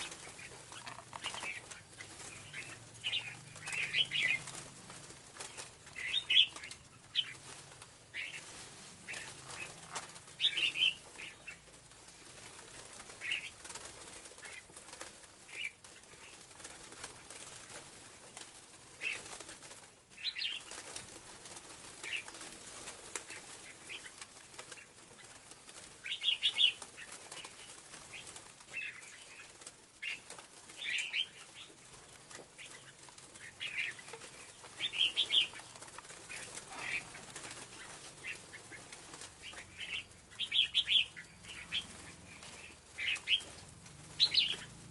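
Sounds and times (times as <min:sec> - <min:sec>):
bird high chirps: 0:39.5 - 0:43.6, 0:44.2 - 0:44.7.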